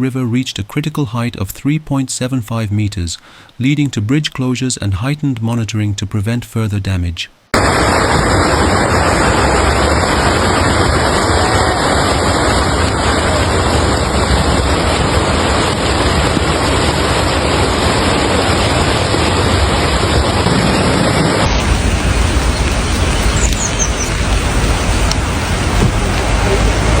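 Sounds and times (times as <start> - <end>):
floodwater rushing: 7.6 - 27.0.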